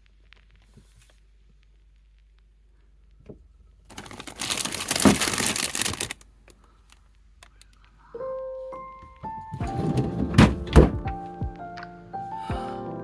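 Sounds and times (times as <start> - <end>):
plastic packaging crinkling: 3.9 - 6.6.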